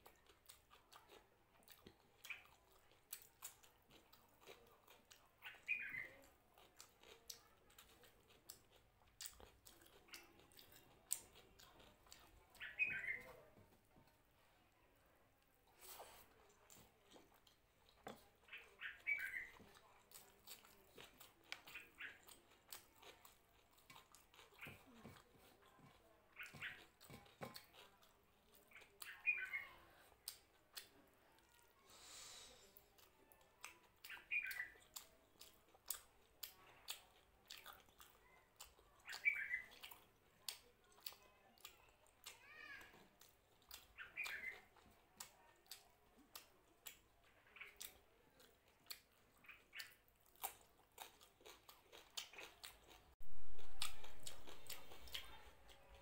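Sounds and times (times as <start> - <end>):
person chewing food: 0.0 - 56.0
hiss-like slurp: 31.9 - 32.8.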